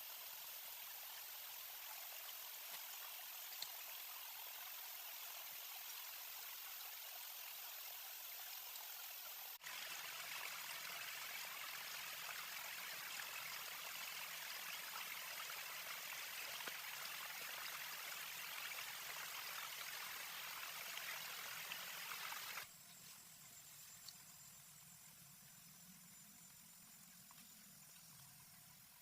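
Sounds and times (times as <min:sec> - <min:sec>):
water running: 0:00.0 - 0:22.7.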